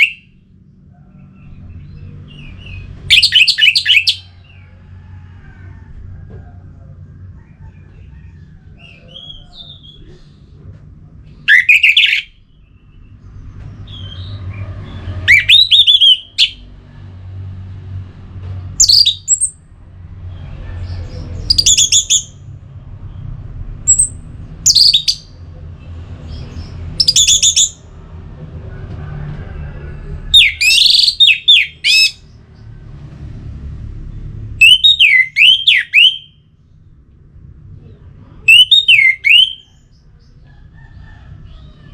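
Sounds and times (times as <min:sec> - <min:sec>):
thrush singing whistled phrases: 0:03.1 - 0:04.2, 0:15.3 - 0:16.6, 0:34.6 - 0:36.4, 0:38.5 - 0:39.7.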